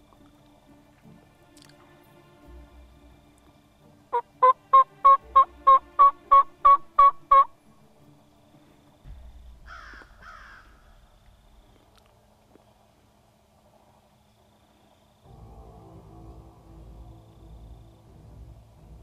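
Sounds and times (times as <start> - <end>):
turkey yelps: 4.1 - 7.5.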